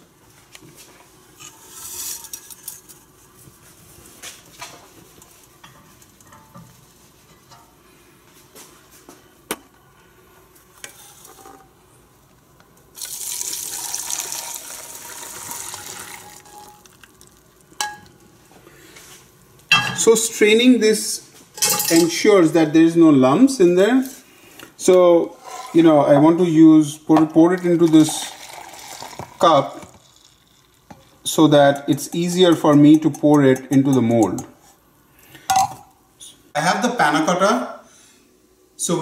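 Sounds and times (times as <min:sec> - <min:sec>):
liquid pouring through strainer: 0:13.0 - 0:17.6, 0:27.9 - 0:30.8
utensils clinking on dishes: 0:19.7 - 0:20.1, 0:21.6 - 0:22.2.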